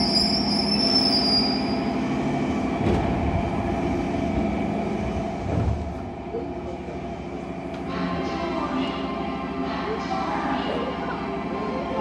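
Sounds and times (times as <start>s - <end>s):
train brake and wheel squeal: 0.0s - 1.9s
train cars rumbling: 0.0s - 12.0s.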